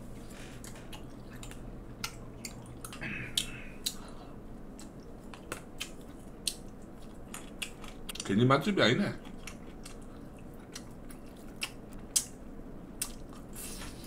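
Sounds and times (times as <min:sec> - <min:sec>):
close chewing with wet smacks: 0:00.6 - 0:04.0, 0:04.7 - 0:08.3, 0:09.2 - 0:12.4, 0:13.0 - 0:13.5.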